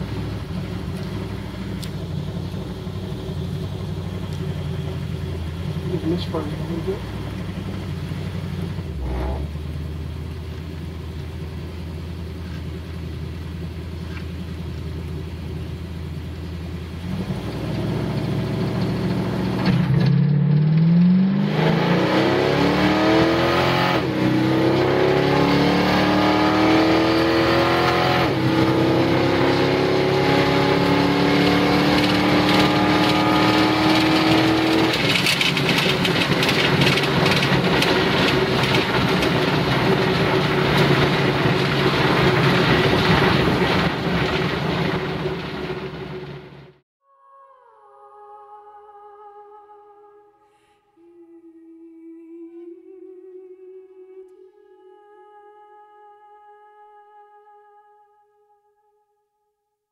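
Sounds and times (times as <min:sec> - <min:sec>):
car engine revving: 0:00.0 - 0:46.8
automatic gear shifts: 0:29.5 - 0:44.7.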